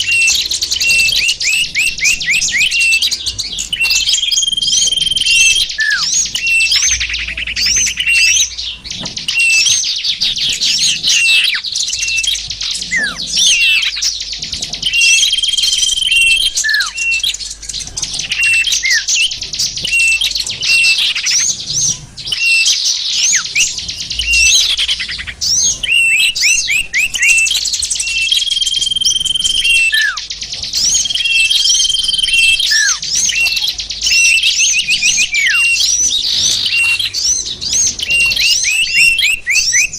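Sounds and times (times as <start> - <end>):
songbirds chirping and trilling: 0.0 - 39.9
high whistles: 22.4 - 37.2.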